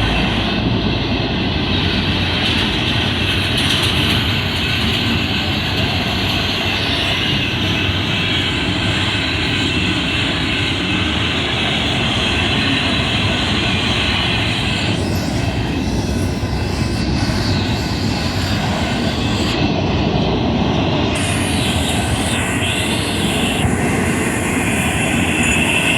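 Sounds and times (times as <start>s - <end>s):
train wheels rumbling on rail: 0.0s - 25.9s
high hiss: 21.1s - 25.9s.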